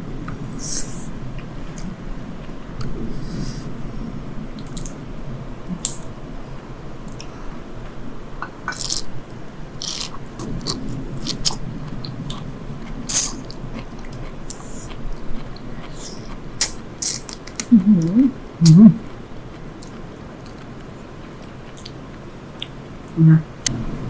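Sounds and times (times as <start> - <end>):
wet chewing: 9.8 - 22.0
person humming: 17.7 - 19.0.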